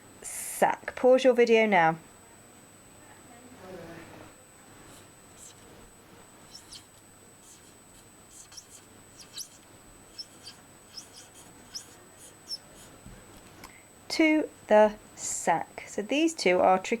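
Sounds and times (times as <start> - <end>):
marker squeaking on whiteboard: 4.9 - 5.7, 6.4 - 13.0.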